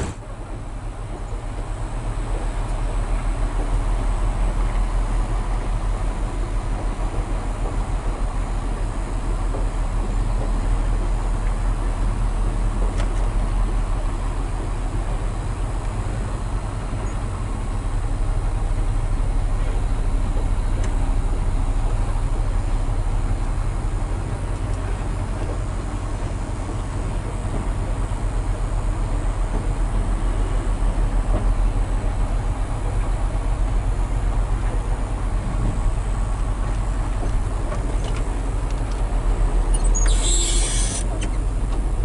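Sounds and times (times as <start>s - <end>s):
diesel truck engine rumbling: 0.0s - 42.0s.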